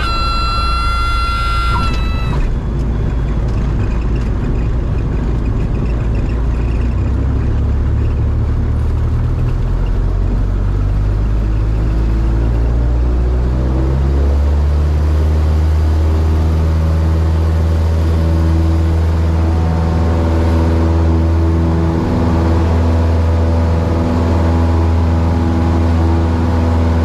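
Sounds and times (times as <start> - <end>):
high steady warning tone: 0.0 - 3.3
aircraft engine and propeller drone: 0.0 - 27.0.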